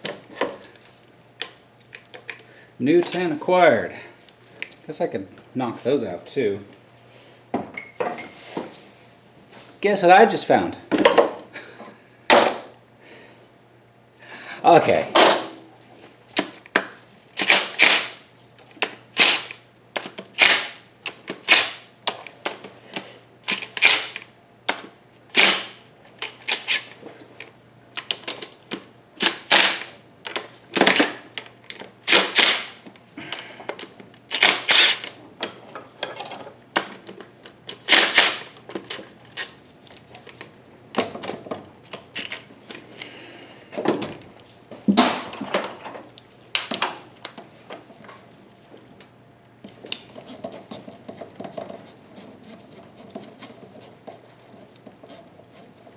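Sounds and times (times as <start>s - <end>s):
socket ratchet clicking: 34.3s - 35.1s.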